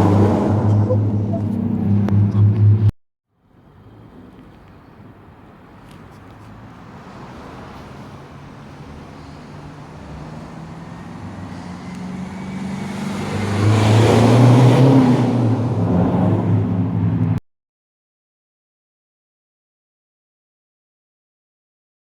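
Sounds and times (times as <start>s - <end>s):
diesel engine running: 0.0s - 2.9s.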